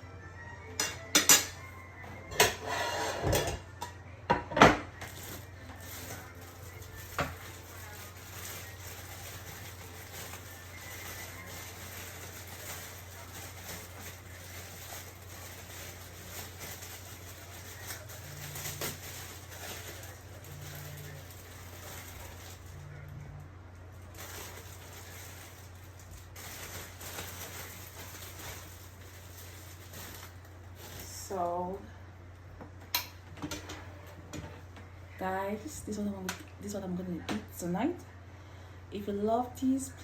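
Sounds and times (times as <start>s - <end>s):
dishes and cutlery clinking: 0.7s - 5.1s.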